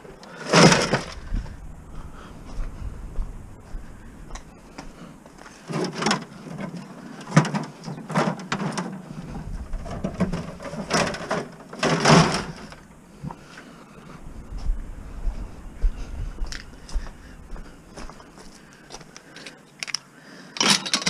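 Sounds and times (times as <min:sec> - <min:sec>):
scrap items knocking and clattering: 0:00.4 - 0:01.2, 0:05.7 - 0:12.9.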